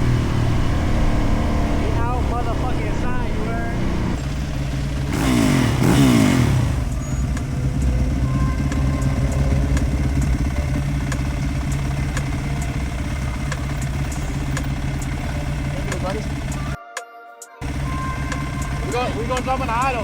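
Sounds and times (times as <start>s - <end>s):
vehicle passing close by: 0.0s - 12.8s
engine running at low revs: 0.0s - 16.8s, 17.6s - 20.0s.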